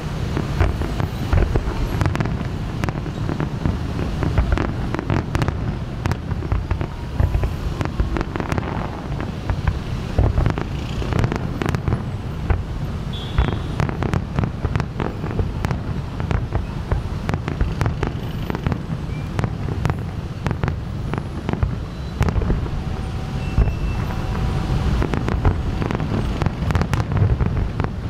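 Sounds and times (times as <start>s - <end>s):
fireworks bursting: 0.0s - 28.0s
low rumble: 20.9s - 27.9s.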